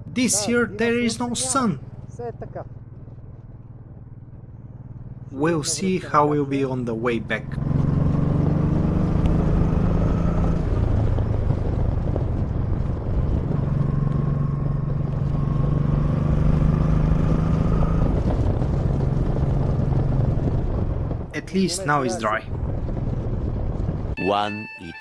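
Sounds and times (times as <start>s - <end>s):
motorcycle engine running: 0.0s - 21.4s, 22.3s - 24.2s
wind rush: 7.6s - 24.2s.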